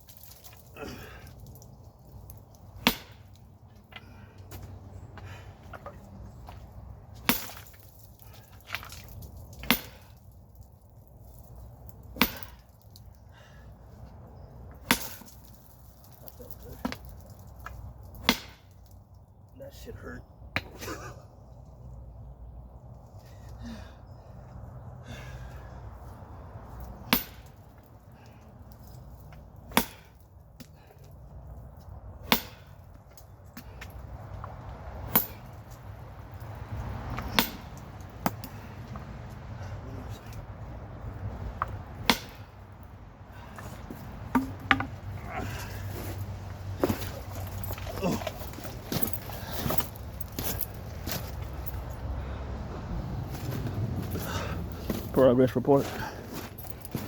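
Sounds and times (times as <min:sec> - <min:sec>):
sledgehammer striking rock: 0:02.8 - 0:03.4, 0:07.2 - 0:07.9, 0:08.7 - 0:10.2, 0:12.1 - 0:12.7, 0:14.8 - 0:15.6, 0:18.0 - 0:18.8, 0:27.0 - 0:27.6, 0:29.6 - 0:30.8, 0:32.2 - 0:32.8, 0:35.0 - 0:35.6, 0:37.2 - 0:38.6, 0:41.6 - 0:42.5, 0:43.6 - 0:45.8.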